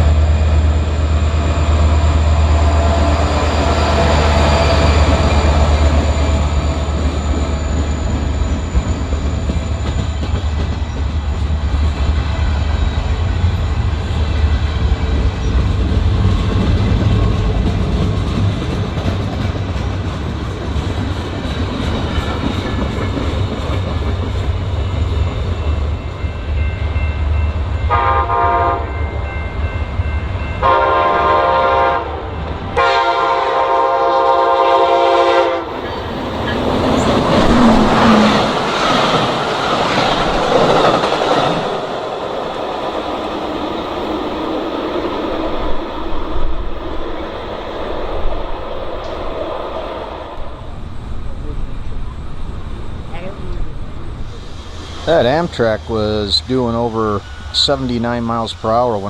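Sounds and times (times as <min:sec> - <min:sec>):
train rumble: 0:00.0 - 0:59.0
train rushing past: 0:00.0 - 0:59.0
train horn blasts: 0:27.8 - 0:29.4, 0:30.6 - 0:35.8.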